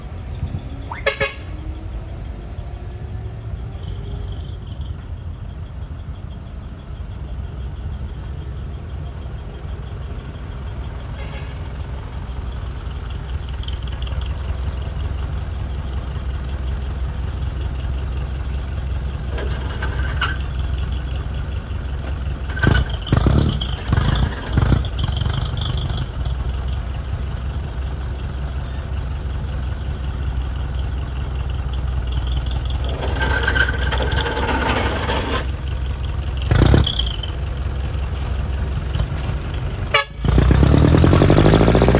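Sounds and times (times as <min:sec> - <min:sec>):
truck diesel engine rumbling: 0:00.0 - 0:41.9
sharp knocks and clatter: 0:19.3 - 0:20.6, 0:22.0 - 0:26.1, 0:32.6 - 0:35.7, 0:36.4 - 0:37.3.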